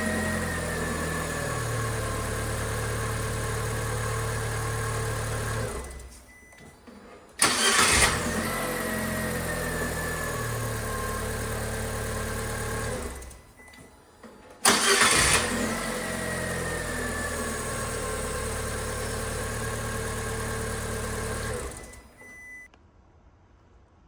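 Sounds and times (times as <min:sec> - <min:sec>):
car engine idling: 0:00.0 - 0:05.9, 0:07.4 - 0:13.4, 0:14.6 - 0:22.2
starter cranking: 0:07.4 - 0:08.3, 0:14.6 - 0:15.8.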